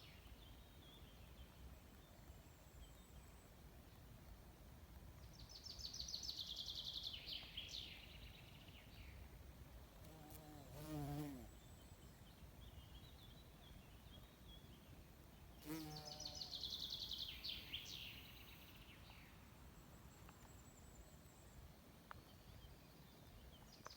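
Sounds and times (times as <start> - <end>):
insect buzz: 10.0 - 11.6, 15.6 - 18.8.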